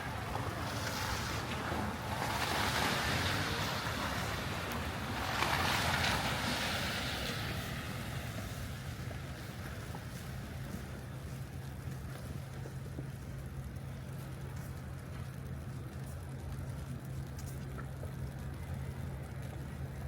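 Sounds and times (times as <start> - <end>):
tyre hiss of passing vehicles: 0.0 - 11.1
low city hum: 0.0 - 20.0.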